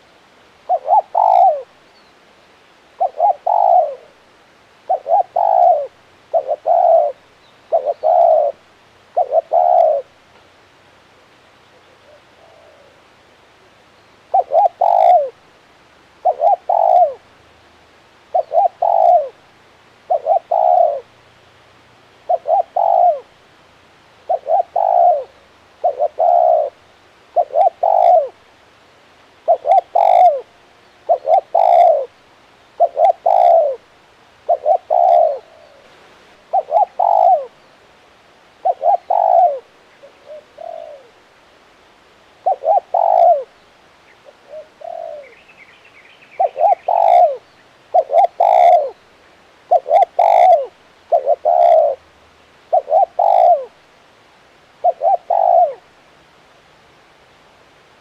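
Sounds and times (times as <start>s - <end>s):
dove cooing: 0.0s - 1.8s, 2.8s - 10.2s, 11.6s - 13.1s, 14.2s - 15.4s, 16.2s - 17.3s, 18.2s - 21.2s, 22.2s - 23.4s, 24.2s - 28.5s, 29.4s - 37.6s, 38.5s - 41.4s, 42.3s - 53.9s, 54.8s - 56.0s.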